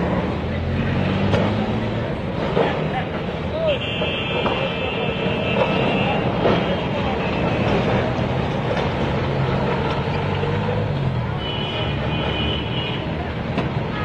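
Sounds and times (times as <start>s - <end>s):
street traffic noise: 0.0s - 14.0s
vehicle engine: 0.0s - 14.0s.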